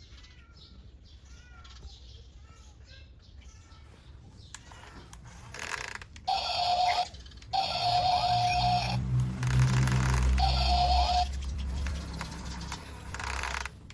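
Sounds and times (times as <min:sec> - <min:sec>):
small electric motor whining: 0:04.7 - 0:13.8.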